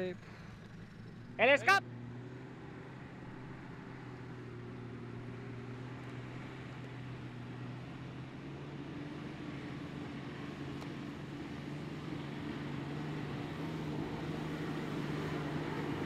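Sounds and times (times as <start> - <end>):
engine idling: 0.0 - 2.1.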